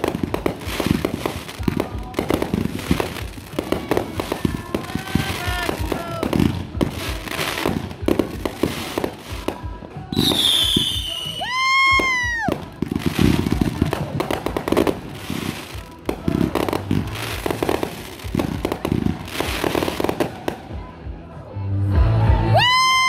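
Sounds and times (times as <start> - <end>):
fireworks cracking and popping: 0.0 - 21.0
firework whistle: 10.1 - 13.6.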